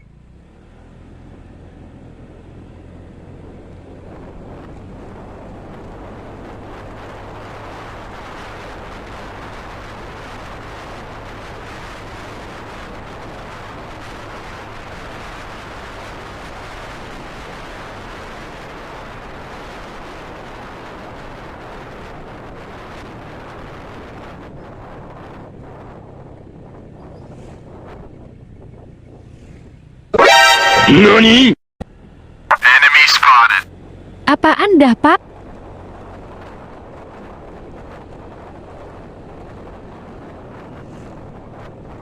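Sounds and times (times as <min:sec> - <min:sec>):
motorcycle engine hum: 0:00.0 - 0:30.1, 0:35.2 - 0:42.0
wind rushing over microphone: 0:03.3 - 0:29.8, 0:35.2 - 0:42.0.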